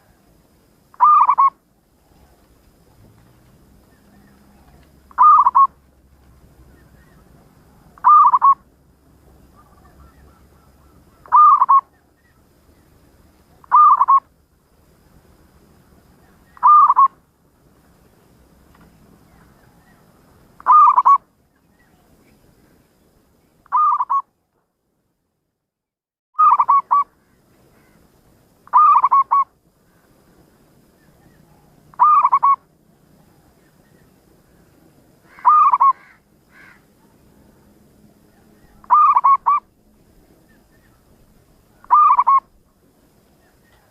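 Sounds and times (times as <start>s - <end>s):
dove cooing: 1.0s - 2.5s, 3.8s - 5.8s, 7.0s - 8.7s, 9.6s - 12.0s, 13.6s - 14.2s, 16.5s - 17.1s, 20.6s - 21.2s, 23.7s - 24.2s, 26.4s - 27.1s, 28.7s - 29.5s, 31.2s - 32.7s, 35.3s - 37.2s, 38.3s - 39.7s, 41.7s - 42.6s.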